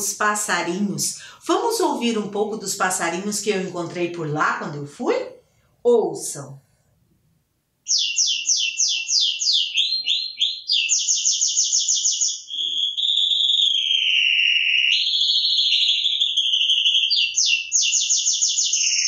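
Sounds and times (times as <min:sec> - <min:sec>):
songbird singing: 0:07.9 - 0:19.0.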